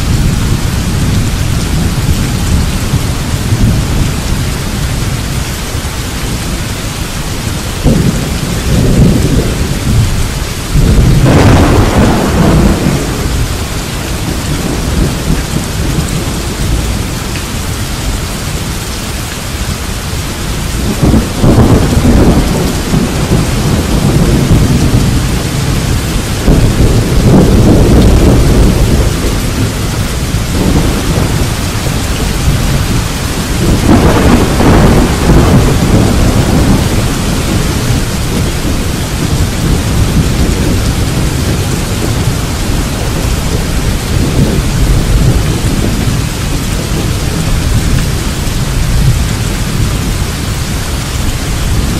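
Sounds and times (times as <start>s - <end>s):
steady rain: 0.0s - 51.9s
thunder rumbling: 0.0s - 51.9s.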